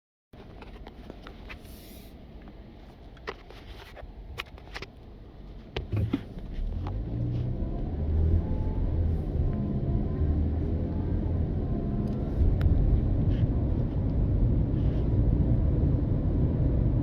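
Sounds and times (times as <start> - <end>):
road noise: 0.4 - 17.0
car engine accelerating: 5.8 - 17.0.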